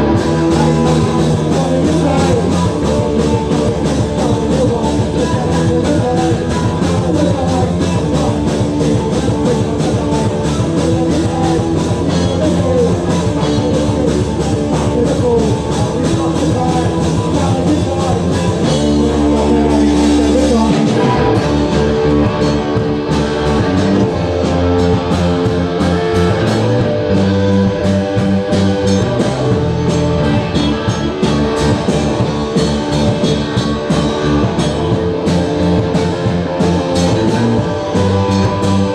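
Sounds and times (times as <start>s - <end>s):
bass guitar: 0.0s - 38.9s
drum kit: 0.0s - 38.9s
electric guitar: 0.0s - 38.9s.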